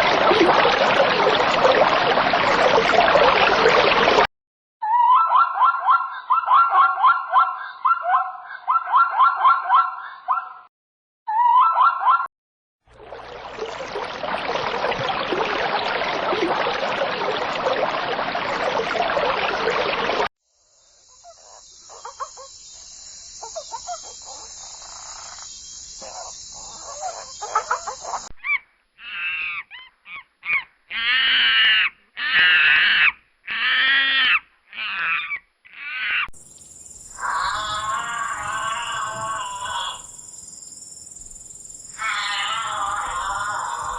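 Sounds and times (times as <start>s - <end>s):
farm animals calling: 37.2s - 40.1s, 42.0s - 43.9s.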